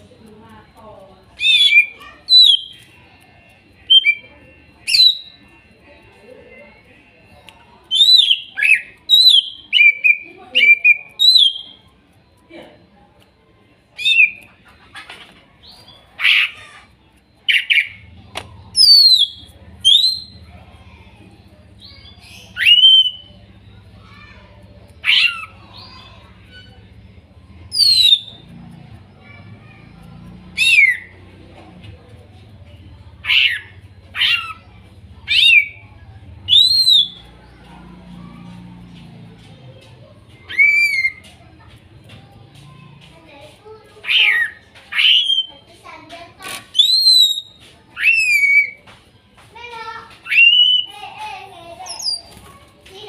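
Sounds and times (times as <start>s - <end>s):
harsh bird chattering: 1.3s - 3.0s, 7.9s - 11.8s, 14.0s - 39.6s, 40.2s - 42.0s, 42.8s - 48.8s
bird whistled calls: 1.4s - 2.9s, 4.8s - 5.4s, 7.9s - 11.8s, 18.7s - 20.4s, 21.8s - 23.4s, 27.7s - 28.5s, 30.6s - 31.2s, 33.2s - 35.8s, 36.4s - 37.6s, 40.4s - 41.3s, 44.0s - 45.6s, 46.7s - 48.8s, 50.2s - 51.0s.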